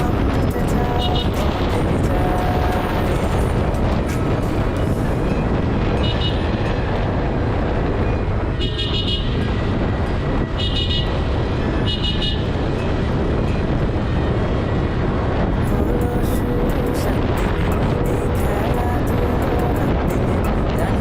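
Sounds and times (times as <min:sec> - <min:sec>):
road traffic rumble: 0:00.0 - 0:21.0
vehicle horn beeping: 0:00.1 - 0:01.8, 0:05.9 - 0:06.7, 0:08.5 - 0:09.6, 0:10.5 - 0:12.6.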